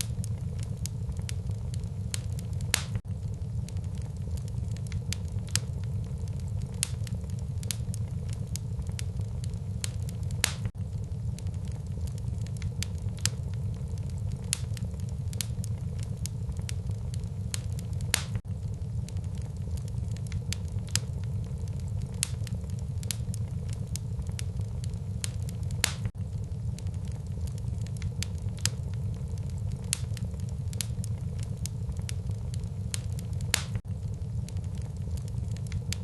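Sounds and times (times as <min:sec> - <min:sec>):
low rumble of flames: 0:00.0 - 0:36.0
wood fire crackling and popping: 0:00.0 - 0:36.0.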